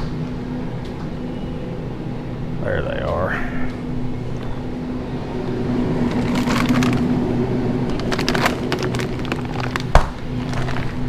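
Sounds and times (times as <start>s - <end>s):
low electrical hum: 0.0s - 11.0s
plastic packaging crinkling: 6.0s - 7.1s, 7.8s - 11.0s.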